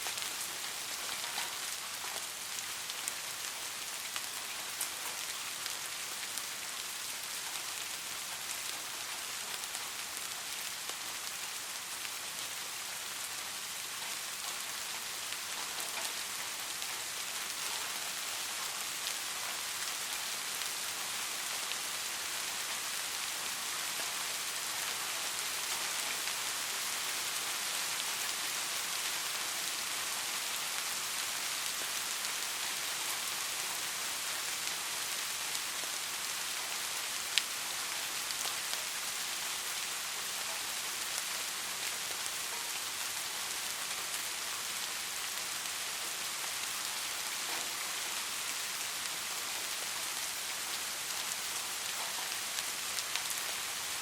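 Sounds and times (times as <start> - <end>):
rain hissing on a street: 0.0 - 54.0
raindrop ticks: 1.0 - 2.3.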